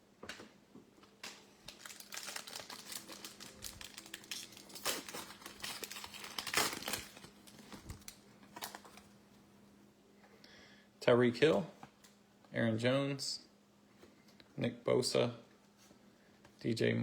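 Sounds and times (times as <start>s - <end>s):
wrapper ripping: 1.2s - 9.1s
wrapper crinkling: 1.2s - 9.2s.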